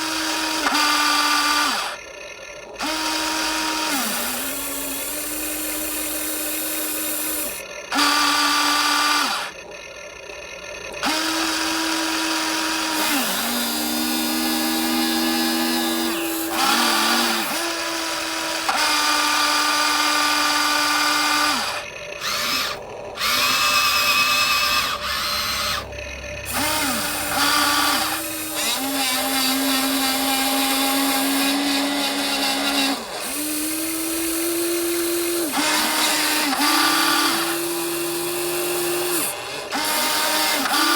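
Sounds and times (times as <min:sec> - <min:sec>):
small electric motors whining: 0:00.0 - 0:40.9.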